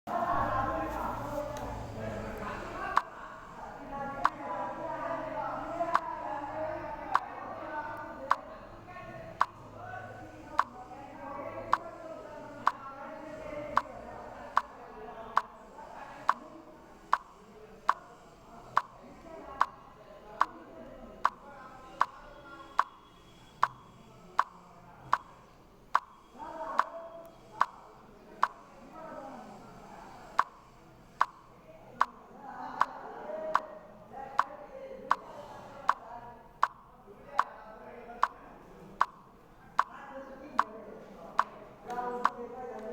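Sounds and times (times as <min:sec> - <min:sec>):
sharp clicks: 0:12.6 - 0:12.8, 0:23.6 - 0:23.8, 0:24.4 - 0:26.2, 0:31.2 - 0:32.2, 0:36.6 - 0:36.8, 0:39.0 - 0:39.9.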